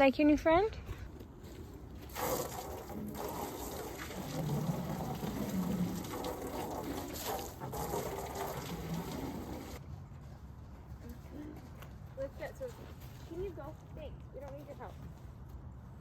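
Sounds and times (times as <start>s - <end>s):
water running and splashing: 2.1s - 9.8s.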